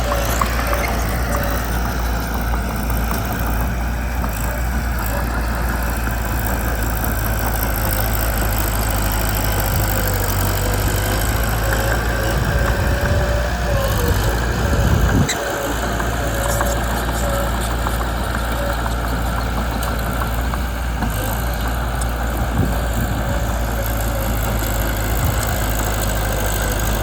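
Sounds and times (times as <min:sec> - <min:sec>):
bulldozer diesel engine running: 0:00.0 - 0:27.0.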